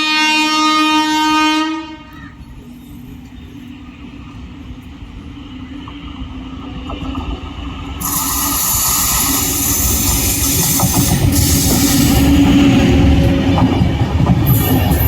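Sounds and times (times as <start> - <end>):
train rumbling past: 0.0 - 15.0
hiss: 8.0 - 12.6.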